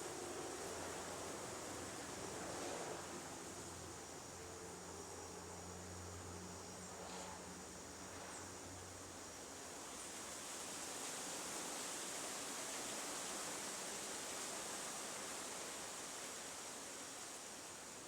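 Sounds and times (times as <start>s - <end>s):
steady outdoor hiss: 0.0s - 18.0s.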